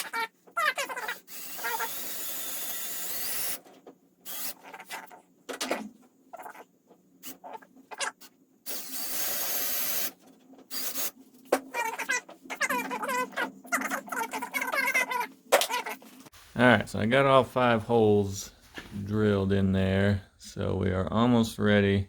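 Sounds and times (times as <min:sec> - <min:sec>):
power drill boring into wood: 0:00.8 - 0:03.6, 0:04.3 - 0:04.8, 0:08.7 - 0:11.1.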